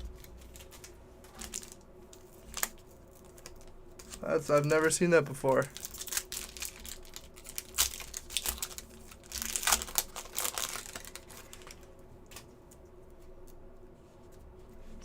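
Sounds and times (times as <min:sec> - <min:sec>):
foil wrapper crinkling: 0:00.0 - 0:12.5.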